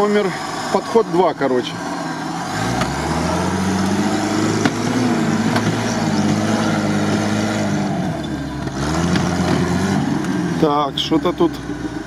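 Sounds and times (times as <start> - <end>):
off-road vehicle engine straining: 0.0 - 12.0.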